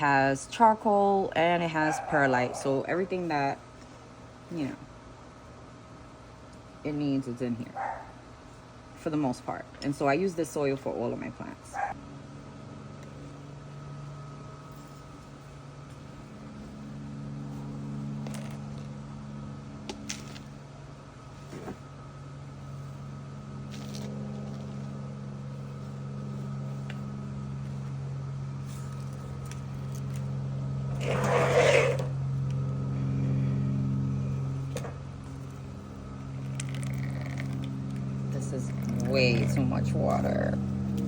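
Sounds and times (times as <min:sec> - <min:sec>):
low mechanical hum: 0:00.0 - 0:41.0
loud rustling scraping noise: 0:30.9 - 0:32.2.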